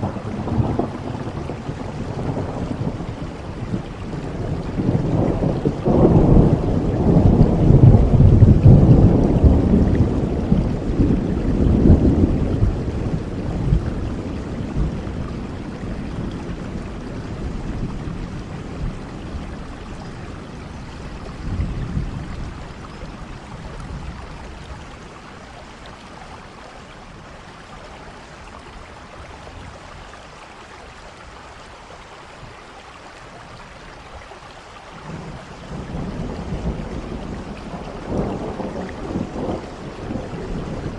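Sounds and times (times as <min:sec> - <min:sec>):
thunder rumbling: 0:00.0 - 0:25.5, 0:35.0 - 0:40.9
steady rain: 0:00.0 - 0:40.9.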